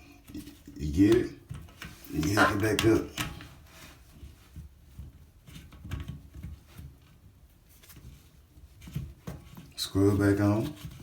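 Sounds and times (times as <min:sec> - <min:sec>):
plastic parts tapping and knocking: 0:04.9 - 0:07.2.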